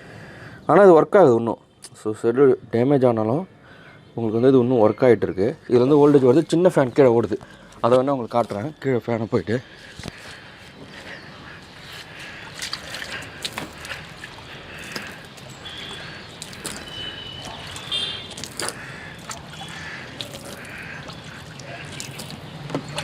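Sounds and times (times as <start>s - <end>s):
faint outdoor ambience: 0.0s - 23.0s
footsteps: 9.9s - 19.6s.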